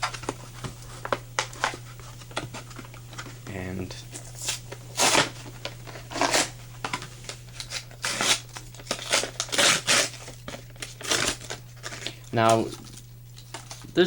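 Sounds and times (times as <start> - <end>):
steady low hum: 0.0 - 14.0
plastic packaging crinkling: 4.2 - 14.0.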